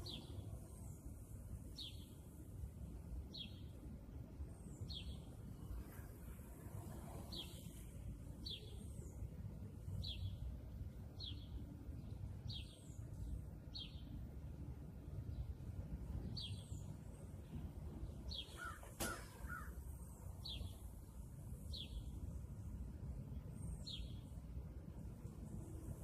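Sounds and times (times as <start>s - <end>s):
small bird chirping: 7.2s - 7.8s.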